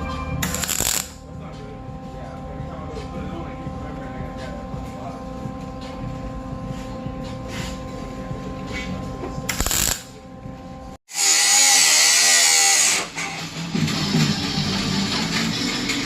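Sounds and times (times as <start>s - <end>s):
steady hum with tones: 0.0s - 16.0s
power tool running high-pitched: 0.4s - 1.2s, 2.7s - 10.2s, 11.1s - 13.7s.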